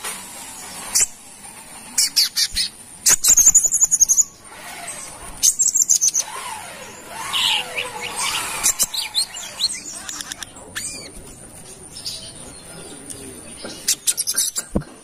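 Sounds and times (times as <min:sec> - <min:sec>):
bird high chips: 0:02.0 - 0:11.2
bird rapid high trilling: 0:02.0 - 0:11.2.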